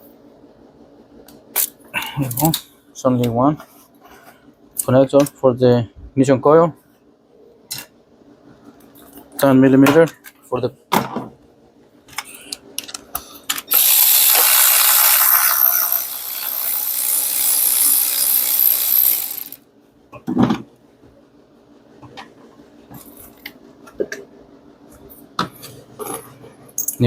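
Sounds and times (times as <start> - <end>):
power tool spinning: 13.7 - 19.6.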